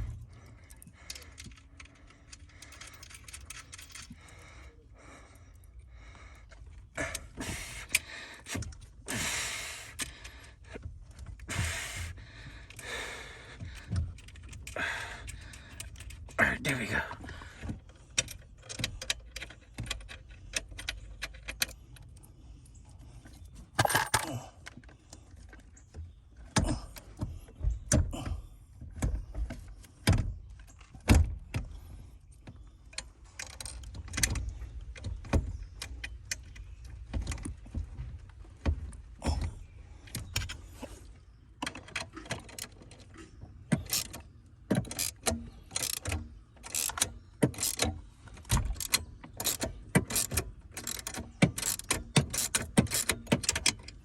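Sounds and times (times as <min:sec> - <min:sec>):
plastic parts clicking and rattling: 0:00.1 - 0:04.4, 0:13.6 - 0:16.4, 0:17.6 - 0:22.2, 0:23.3 - 0:28.1, 0:32.8 - 0:54.0.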